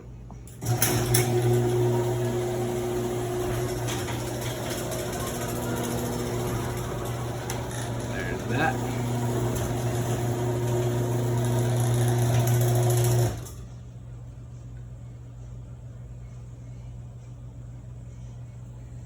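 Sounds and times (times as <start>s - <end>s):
garage door opener motor humming: 0.5s - 13.8s
faint low hum: 13.3s - 19.0s.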